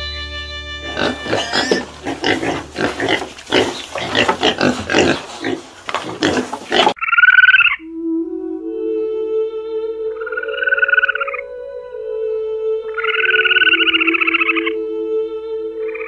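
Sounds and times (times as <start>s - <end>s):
music: 0.0s - 2.8s, 7.8s - 16.0s
pigs grunting: 0.8s - 7.0s.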